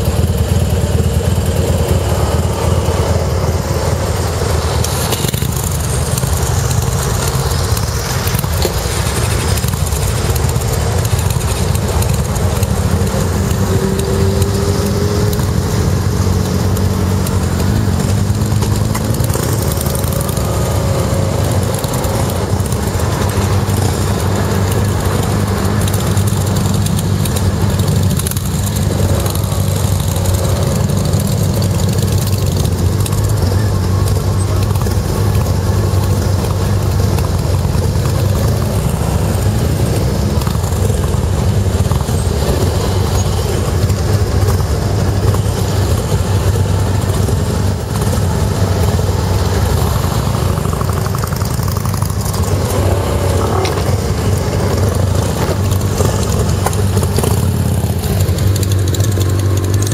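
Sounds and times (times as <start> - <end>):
motorcycle engines idling: 0.0 - 59.9.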